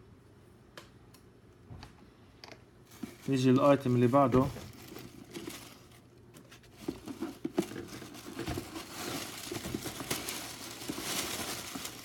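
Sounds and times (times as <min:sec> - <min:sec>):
packaging crinkling: 0:03.2 - 0:12.0.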